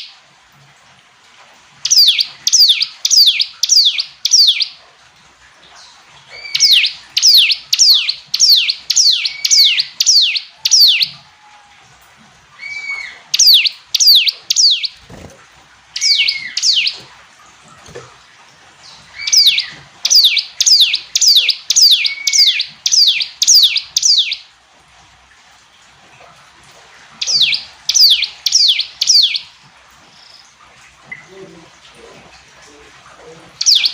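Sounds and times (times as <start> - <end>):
bird chirping: 1.8 - 4.8, 5.8 - 11.2, 12.6 - 18.2, 18.8 - 24.4, 27.2 - 29.5, 32.7 - 33.9.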